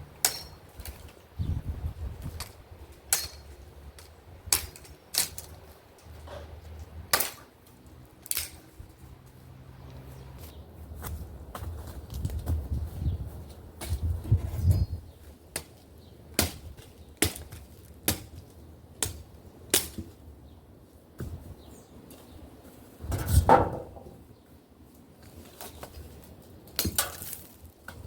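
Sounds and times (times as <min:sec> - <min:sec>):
axe striking wood: 0:00.2 - 0:00.6, 0:16.4 - 0:18.3.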